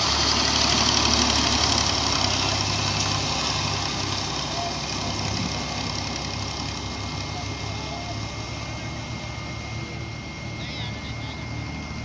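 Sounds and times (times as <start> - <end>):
heavy machinery diesel engine running: 0.0 - 12.0.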